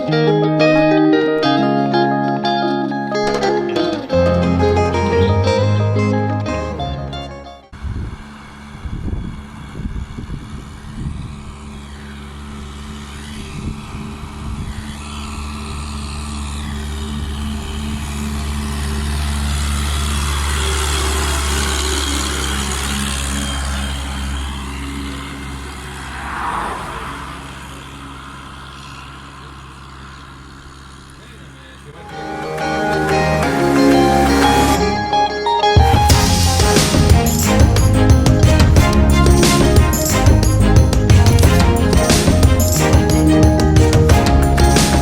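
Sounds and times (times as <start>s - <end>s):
tractor diesel engine running: 2.5s - 45.0s.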